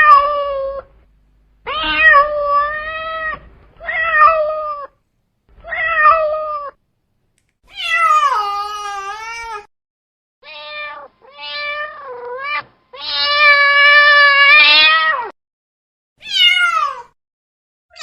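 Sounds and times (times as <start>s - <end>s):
cat meowing: 0.0s - 0.9s, 1.6s - 5.0s, 5.6s - 6.8s, 7.7s - 9.7s, 10.4s - 15.3s, 16.2s - 17.1s.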